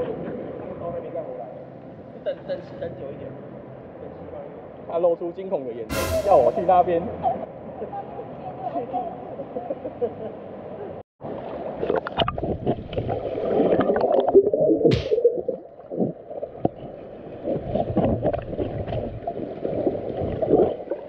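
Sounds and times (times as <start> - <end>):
brief hiss: 5.9 - 7.0
water churning: 11.2 - 21.0
underwater bubbling: 11.3 - 21.0.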